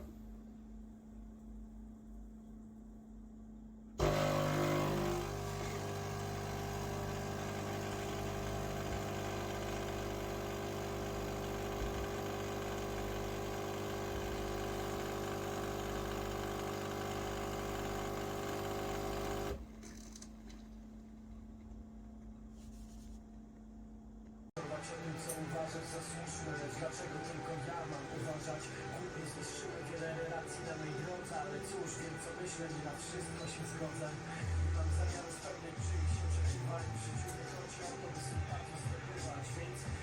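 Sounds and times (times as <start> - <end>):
espresso machine humming: 4.0 - 19.7.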